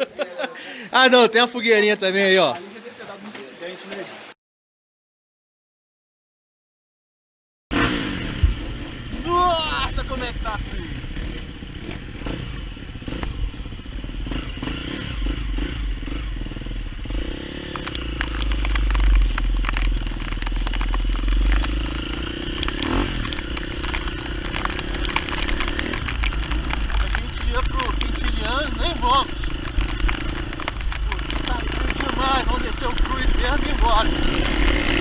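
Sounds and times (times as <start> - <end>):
raindrop clicks: 17.7 - 35.0.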